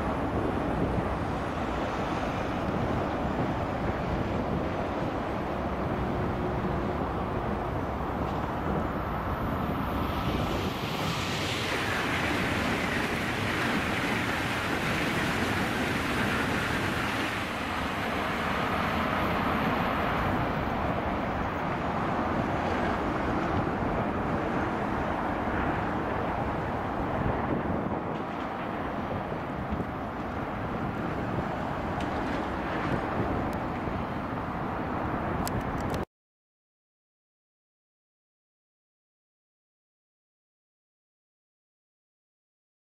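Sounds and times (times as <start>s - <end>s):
high-speed train passing: 0.0s - 35.8s
road traffic hum: 0.0s - 36.1s.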